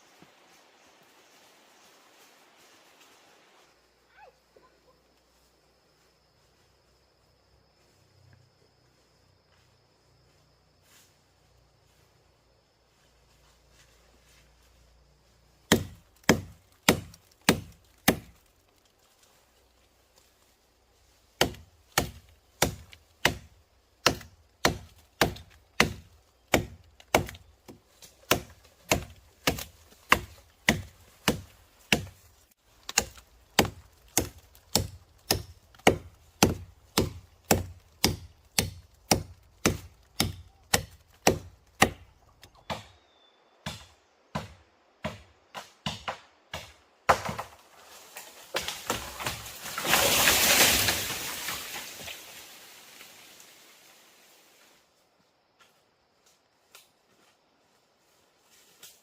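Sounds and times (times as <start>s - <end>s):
blade chopping wood: 15.7s - 18.4s, 21.4s - 32.2s, 32.8s - 43.0s, 43.6s - 47.6s.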